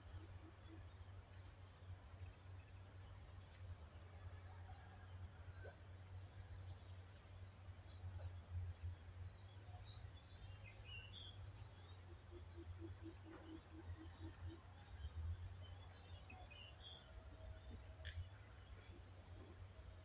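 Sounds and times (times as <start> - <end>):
sharp click: 18.0 - 18.4.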